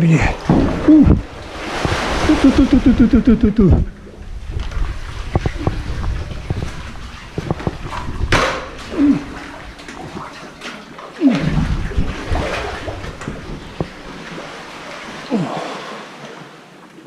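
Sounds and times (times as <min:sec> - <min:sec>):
water sloshing around hull: 0:00.3 - 0:17.0
kayak paddle splashing: 0:00.4 - 0:17.0
sharp knocks: 0:05.3 - 0:08.9.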